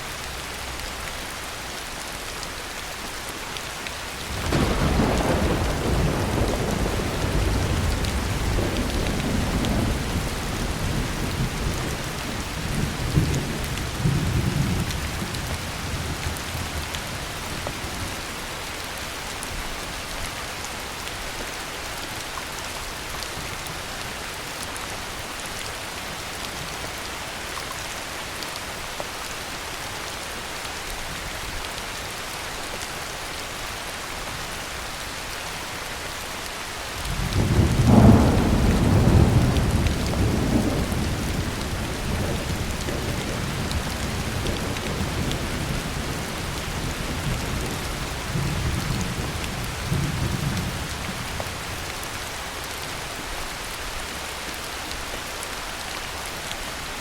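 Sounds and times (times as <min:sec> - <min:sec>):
heavy rain: 0:00.0 - 0:57.0
thunder rumbling: 0:04.3 - 0:16.8, 0:37.1 - 0:51.7.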